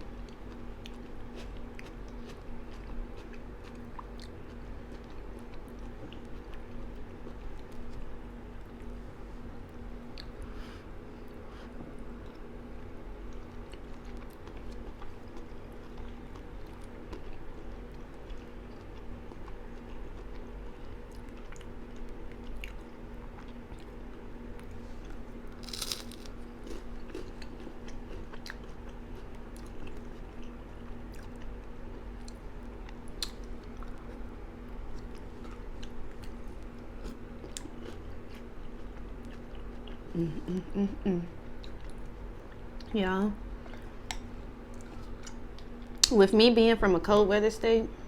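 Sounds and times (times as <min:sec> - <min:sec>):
steady low hum: 0:00.0 - 0:48.0
person chewing food: 0:00.1 - 0:09.0, 0:11.2 - 0:42.9, 0:43.5 - 0:46.1
crunchy bite: 0:25.5 - 0:27.5.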